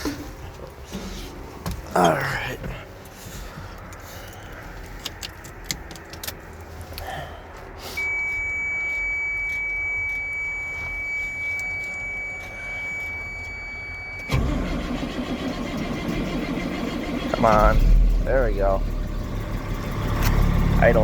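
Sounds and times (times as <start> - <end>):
truck engine starting and rumbling: 0.0 - 21.0
keys clicking in ignition: 3.0 - 7.1, 8.0 - 16.4.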